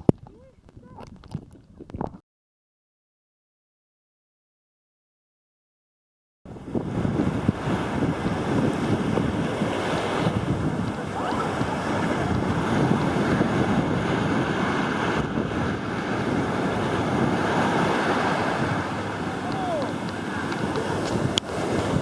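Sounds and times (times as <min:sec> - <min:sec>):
wind buffeting microphone: 0:00.0 - 0:02.2, 0:06.5 - 0:22.0
ocean surf: 0:06.5 - 0:22.0.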